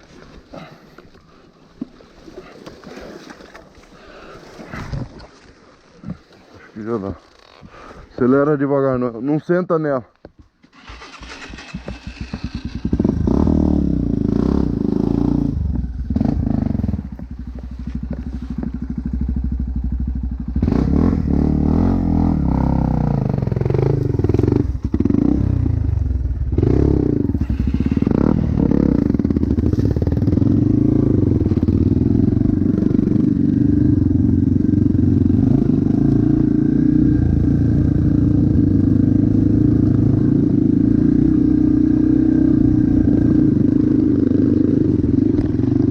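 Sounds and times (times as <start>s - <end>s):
dirt bike engine revving: 10.7s - 45.9s.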